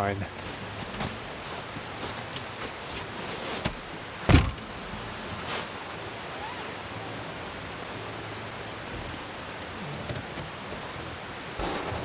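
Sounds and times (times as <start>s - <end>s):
steady background hiss: 0.0s - 12.0s
heavy thump: 4.3s - 4.8s.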